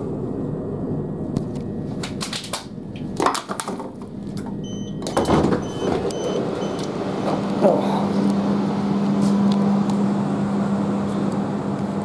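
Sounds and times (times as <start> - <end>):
train carriage clattering and rattling: 2.1 - 7.8
train rumble: 3.9 - 12.0.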